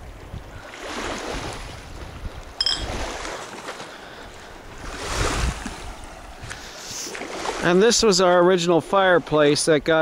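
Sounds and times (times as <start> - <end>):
wind buffeting microphone: 0.0 - 3.4, 4.3 - 6.7.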